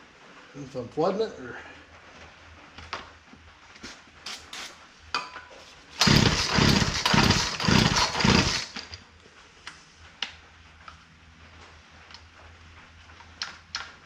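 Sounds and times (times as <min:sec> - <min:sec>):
chainsaw engine running unevenly: 0:06.0 - 0:08.9.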